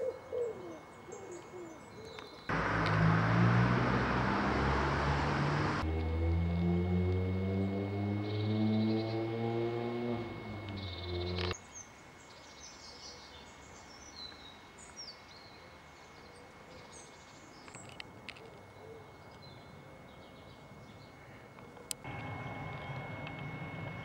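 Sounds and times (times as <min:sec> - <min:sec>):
small birds chirping: 0:10.2 - 0:18.0, 0:18.7 - 0:24.0.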